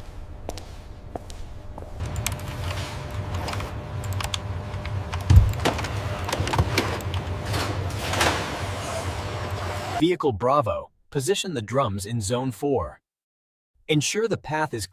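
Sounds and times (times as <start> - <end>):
machinery low hum: 0.0 - 10.0.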